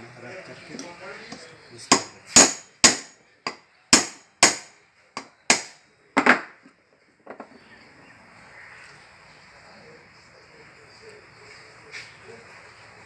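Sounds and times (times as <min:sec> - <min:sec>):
hammer knocking: 0:01.9 - 0:06.5.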